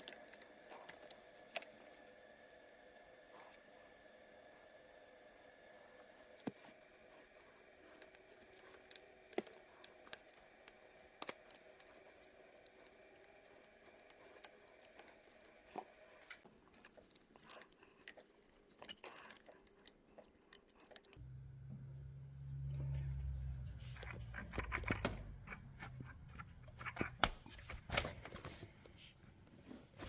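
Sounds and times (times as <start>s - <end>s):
steady low hum: 21.2s - 30.0s.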